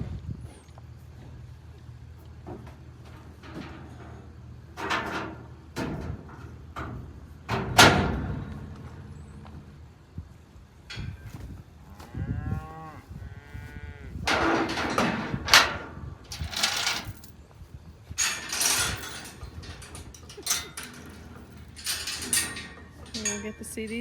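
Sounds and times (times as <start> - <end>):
cattle mooing: 11.9 - 14.2.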